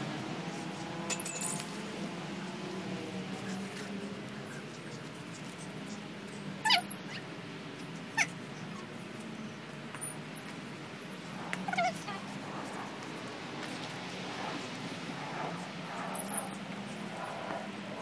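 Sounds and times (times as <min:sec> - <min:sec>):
garden background noise: 0:00.0 - 0:18.0.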